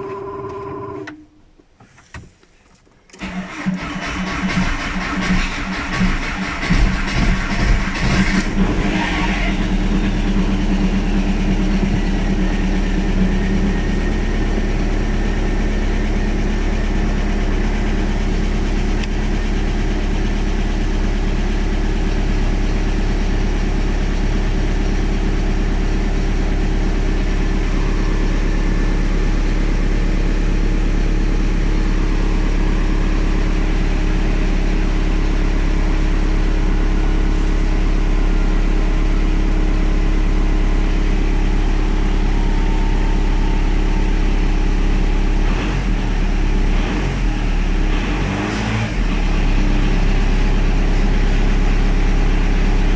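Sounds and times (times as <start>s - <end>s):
diesel engine idling: 3.2s - 48.2s, 49.0s - 52.9s.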